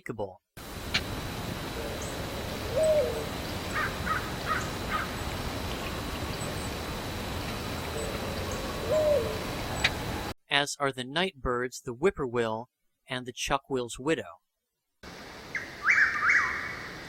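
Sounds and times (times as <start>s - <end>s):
outdoor background noise: 0.6s - 10.4s, 15.0s - 17.0s
dove cooing: 0.9s - 10.3s
bird chirps: 15.5s - 17.0s.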